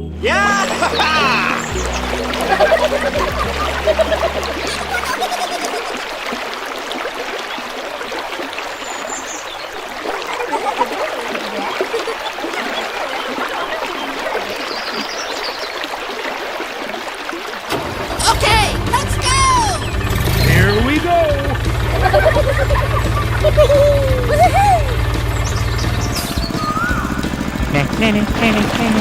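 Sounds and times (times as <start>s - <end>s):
low background music: 0.0s - 5.2s, 18.2s - 29.0s
river water trickling: 0.3s - 29.0s.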